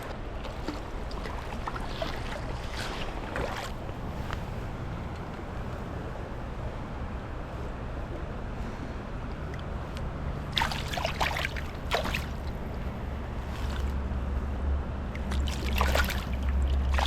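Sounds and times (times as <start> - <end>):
creek water running: 0.0 - 8.6, 9.2 - 14.3, 15.0 - 17.0
splashes in water: 0.4 - 4.5, 10.4 - 14.0, 15.1 - 17.0.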